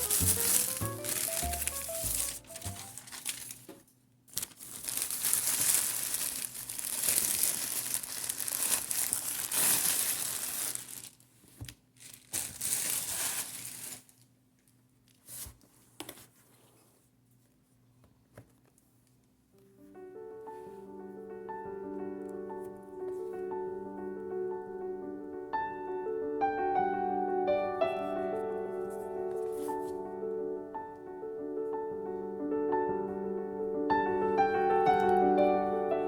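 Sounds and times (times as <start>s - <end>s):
packaging crinkling and tearing: 0.0s - 15.5s.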